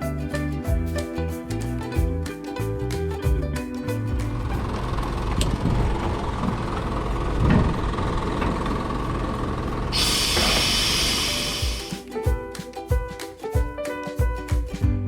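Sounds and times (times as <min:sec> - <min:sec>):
diesel engine rumbling: 0:03.9 - 0:11.8
engine knocks: 0:04.1 - 0:11.8
loud air hiss: 0:09.9 - 0:12.0.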